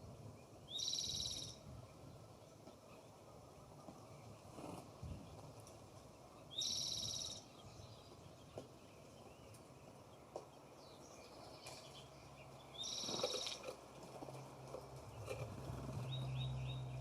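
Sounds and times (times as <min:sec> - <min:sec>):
bird high calls: 0:00.7 - 0:01.7, 0:06.4 - 0:08.7, 0:11.0 - 0:13.7.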